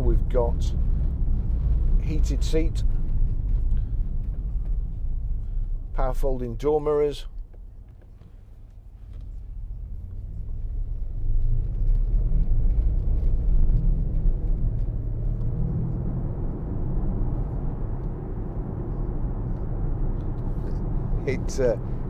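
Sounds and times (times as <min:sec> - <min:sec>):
car engine accelerating: 0:09.8 - 0:22.0.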